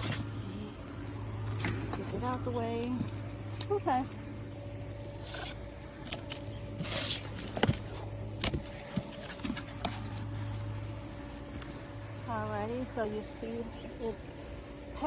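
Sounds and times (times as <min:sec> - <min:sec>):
steady low hum: 0:00.0 - 0:15.0
foam packaging rustling: 0:05.0 - 0:10.9.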